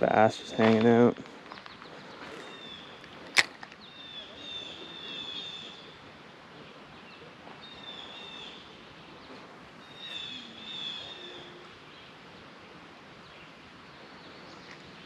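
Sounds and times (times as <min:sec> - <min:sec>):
faint background noise: 0:00.0 - 0:15.0
songbird whistling: 0:09.8 - 0:11.6.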